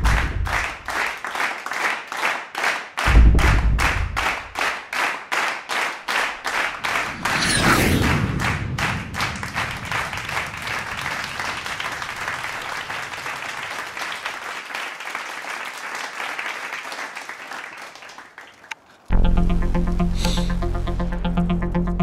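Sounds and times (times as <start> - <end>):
crowd applauding: 0.0 - 7.3, 8.1 - 18.9
loud music: 19.1 - 22.0.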